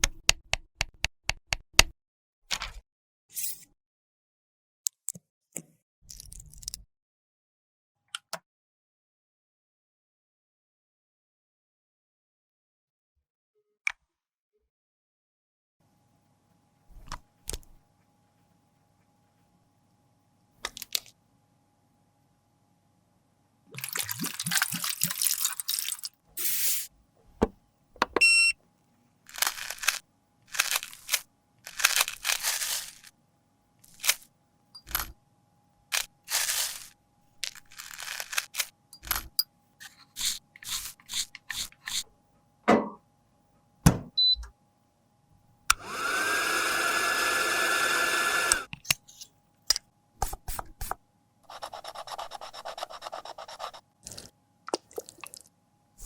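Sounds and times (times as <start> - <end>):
tools scraping powder: 3.3 - 3.7, 31.7 - 33.1, 36.0 - 37.0, 39.8 - 42.1
small electric motor whirring: 45.7 - 48.7.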